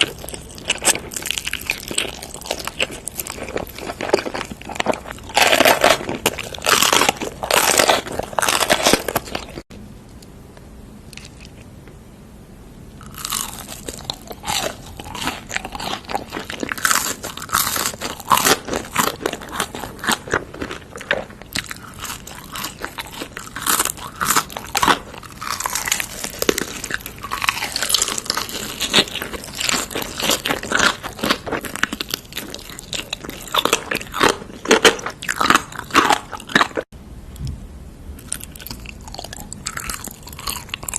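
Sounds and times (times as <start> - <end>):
crunchy biting and chewing food: 0.0 - 9.7, 11.1 - 11.7, 13.0 - 36.9, 38.2 - 40.9.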